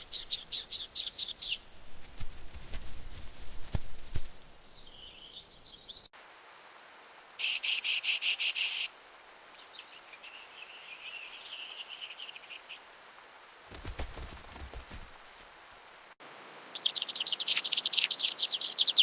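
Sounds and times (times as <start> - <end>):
bird trilling: 0.0 - 5.5.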